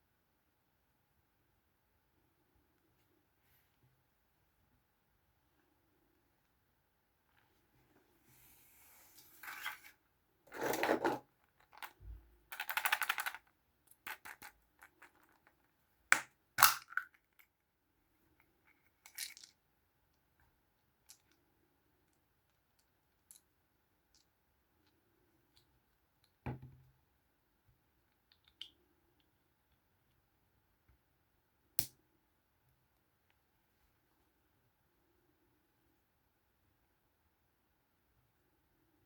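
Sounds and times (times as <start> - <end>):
plastic toys scraping and rustling: 9.0 - 11.3.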